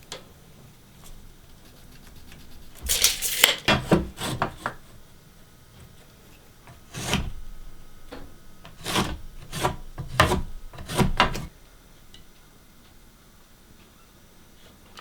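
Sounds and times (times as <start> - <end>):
wood scraping and knocking: 8.1 - 11.5.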